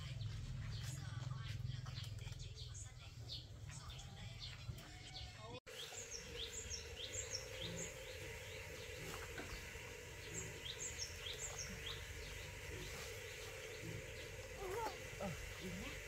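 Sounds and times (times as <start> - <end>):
outdoor background noise: 0.0 - 16.0
small birds chirping: 0.0 - 16.0
steady low hum: 5.7 - 16.0.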